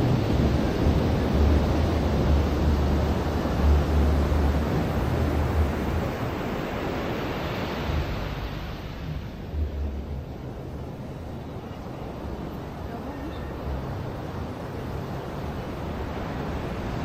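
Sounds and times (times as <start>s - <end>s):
surf washing on a beach: 0.0s - 17.0s
wind buffeting microphone: 0.0s - 17.0s.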